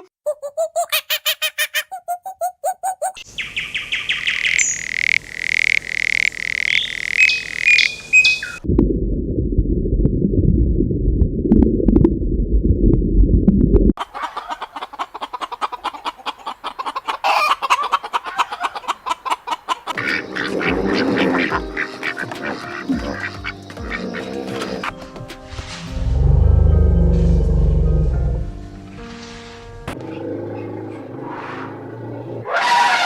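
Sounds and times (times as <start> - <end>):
muffled low rumble: 8.7 - 14.0
flock of birds chattering: 17.3 - 24.9.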